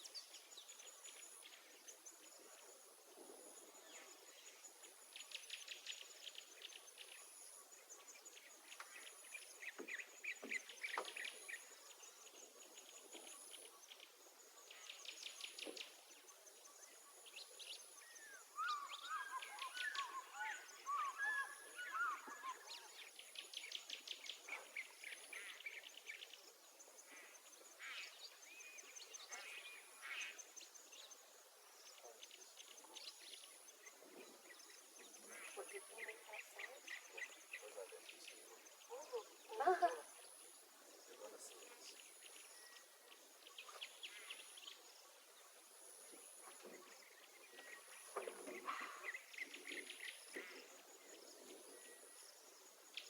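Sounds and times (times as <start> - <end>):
small birds chirping and trilling: 3.5 - 53.0
warbled bird calls: 18.3 - 23.0.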